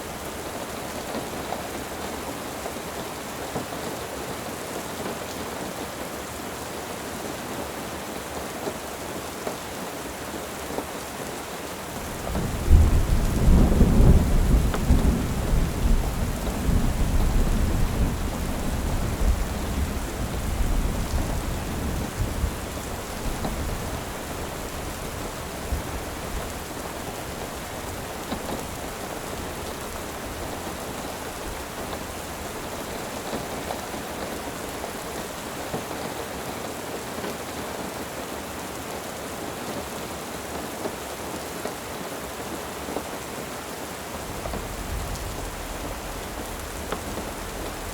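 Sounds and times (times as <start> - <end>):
steady rain: 0.0 - 47.9
thunder rumbling: 12.0 - 33.4, 44.2 - 47.9.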